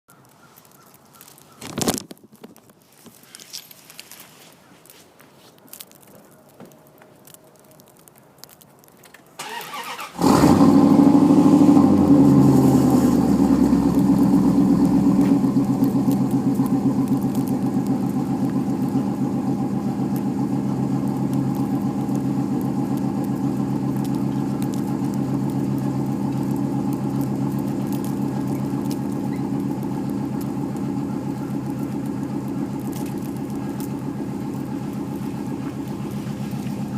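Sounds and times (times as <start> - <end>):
starter cranking: 9.4 - 11.3
car engine idling: 9.4 - 36.9.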